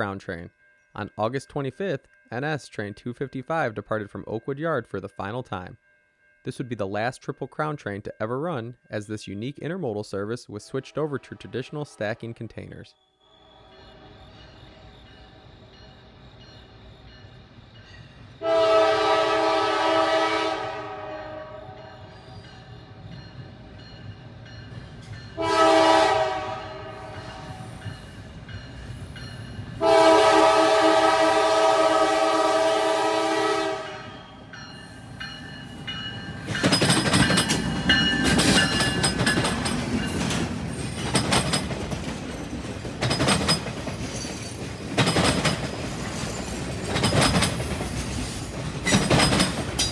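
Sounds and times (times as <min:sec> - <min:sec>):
train rumbling past: 0:13.3 - 0:49.9
diesel locomotive horn: 0:18.4 - 0:22.2, 0:25.3 - 0:27.9, 0:29.8 - 0:35.2
wheels clicking over rail joints: 0:35.3 - 0:49.9.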